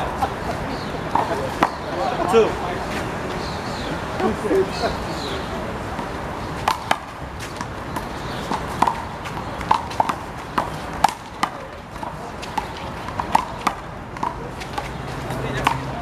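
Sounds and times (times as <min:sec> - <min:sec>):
handball slaps and bounces: 0:08.5 - 0:15.9.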